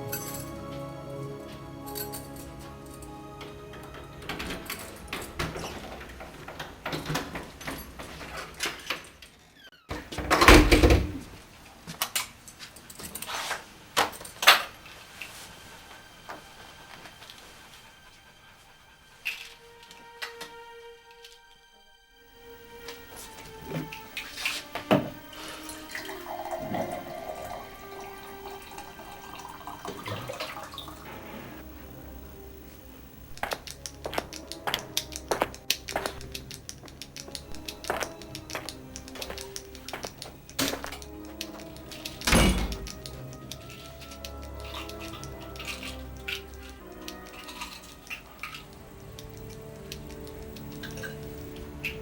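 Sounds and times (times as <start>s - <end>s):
water trickling and dripping: 23.4s - 31.3s, 33.4s - 52.0s
sharp clicks: 33.4s - 45.6s.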